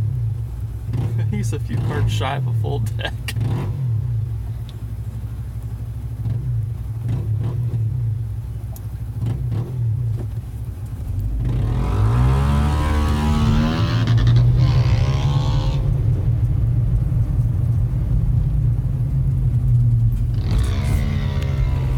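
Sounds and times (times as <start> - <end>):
low engine hum: 0.0 - 21.9
motorcycle engine revving: 0.8 - 4.3, 6.1 - 8.2, 9.1 - 10.4, 11.1 - 16.3, 19.9 - 21.9.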